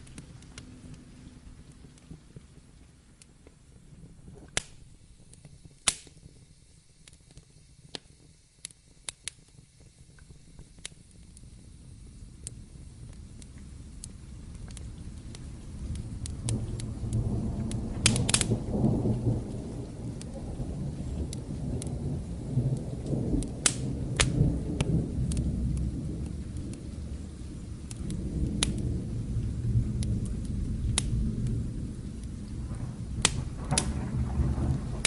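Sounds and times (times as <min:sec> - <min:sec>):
steady rain: 0:00.0 - 0:35.0
wood fire crackling: 0:00.0 - 0:35.0
rolling thunder: 0:11.4 - 0:35.0.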